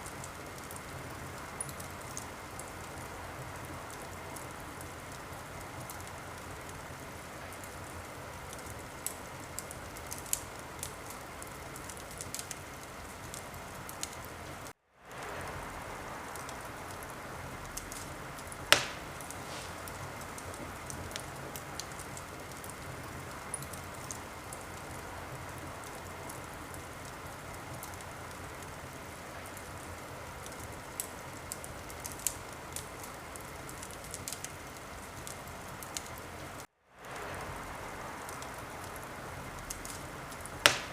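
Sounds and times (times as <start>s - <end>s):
wood fire crackling: 0.0s - 40.9s
loud pop from fire: 18.7s - 20.7s, 40.6s - 40.9s.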